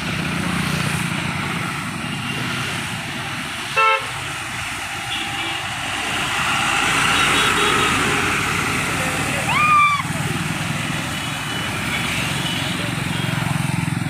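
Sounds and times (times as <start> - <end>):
road vehicle running: 0.0 - 14.0
horn toot: 3.8 - 4.2.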